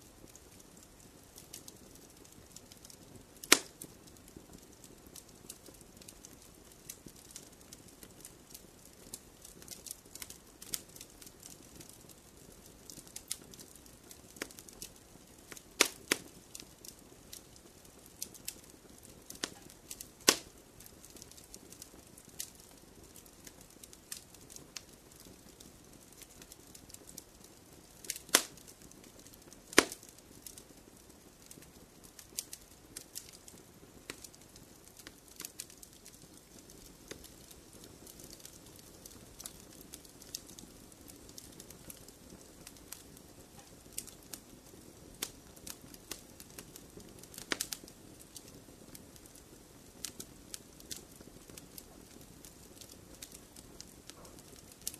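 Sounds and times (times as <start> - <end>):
fire crackling: 0.0 - 54.9
soft hiss of fire: 0.0 - 54.9
loud sharp pops: 20.3 - 20.5, 29.7 - 30.0.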